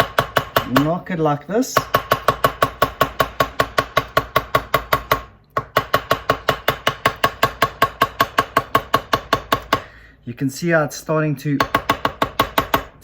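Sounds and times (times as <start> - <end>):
small hammer tapping on metal: 1.8 - 9.9, 11.6 - 12.9.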